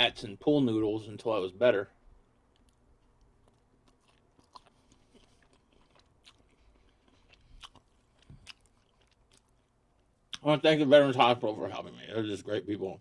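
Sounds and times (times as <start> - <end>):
chewing and crunching food: 2.0 - 10.5.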